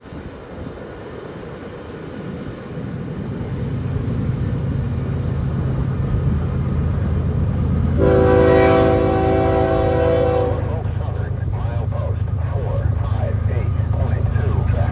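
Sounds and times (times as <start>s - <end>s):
locomotive engine rumble: 0.0s - 14.9s
train air horn blast: 8.0s - 10.7s.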